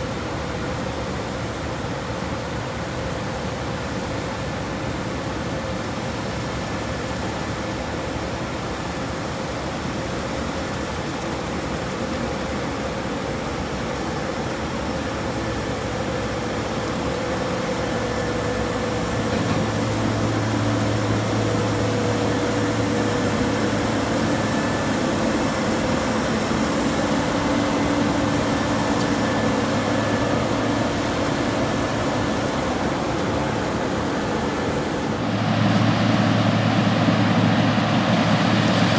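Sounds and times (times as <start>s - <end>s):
harvest machinery droning: 8.9s - 38.9s
high steady whine: 14.2s - 38.9s.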